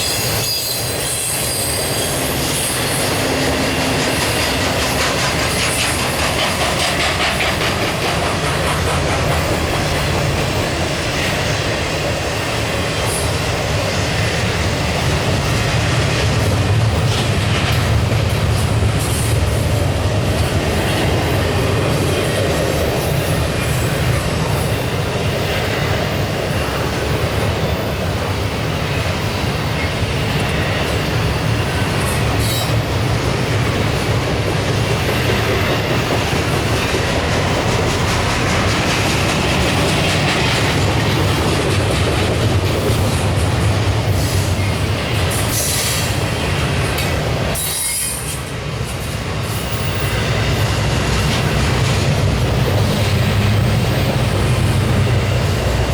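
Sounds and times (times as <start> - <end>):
high-pitched wheel squeals: 0.0 - 4.6
train wheels rumbling on rail: 0.0 - 55.9.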